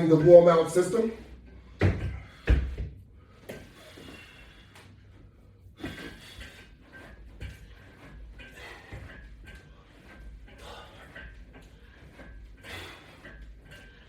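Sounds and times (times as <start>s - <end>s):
dull thuds: 1.7s - 3.7s.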